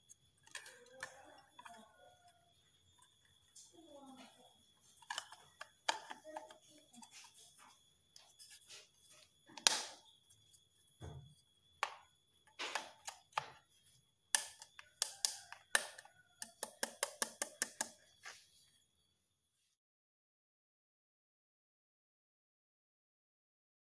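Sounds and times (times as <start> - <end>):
hard plastic parts clicking: 5.0 - 6.7.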